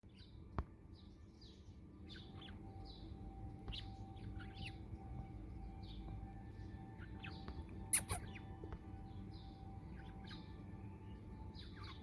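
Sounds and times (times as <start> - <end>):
budgie chirping: 7.2 - 8.4.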